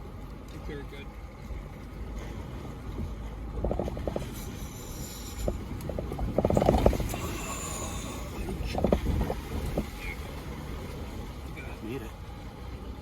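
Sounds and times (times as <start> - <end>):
engine and drivetrain rumble: 0.0 - 13.0
tyres crunching over loose rock: 5.8 - 7.2.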